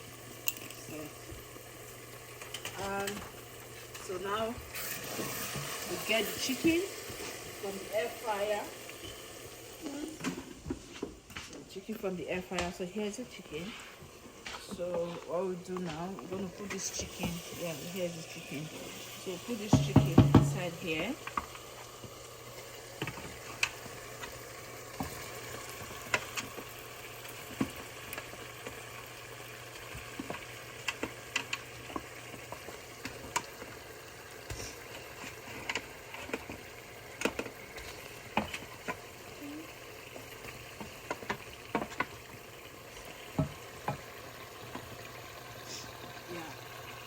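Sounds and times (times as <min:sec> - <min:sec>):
sauce sizzling in a pot: 0:00.0 - 0:47.0
spoon knocking and scraping a pot: 0:19.6 - 0:21.5, 0:34.5 - 0:39.0, 0:40.2 - 0:42.2, 0:43.2 - 0:45.0.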